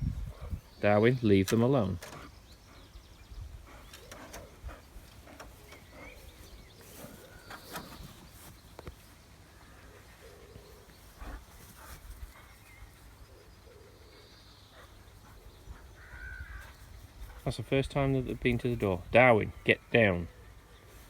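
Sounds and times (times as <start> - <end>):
low wind rumble: 0.0 - 1.0, 2.4 - 8.2.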